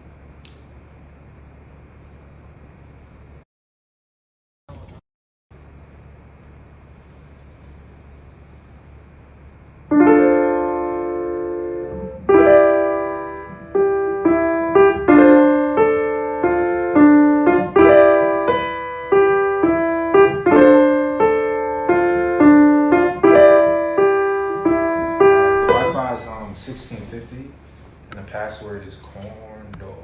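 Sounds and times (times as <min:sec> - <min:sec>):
piano chords on keyboard: 0:09.9 - 0:27.7
faint hiss: 0:09.9 - 0:30.0.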